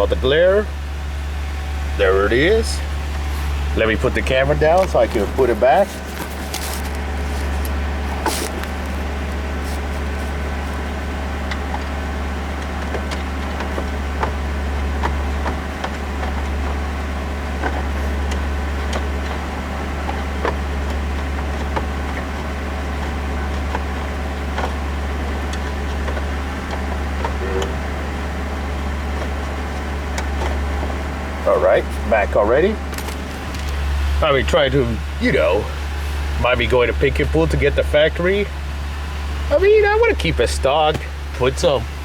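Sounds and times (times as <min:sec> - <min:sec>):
car engine idling: 0:00.0 - 0:42.0.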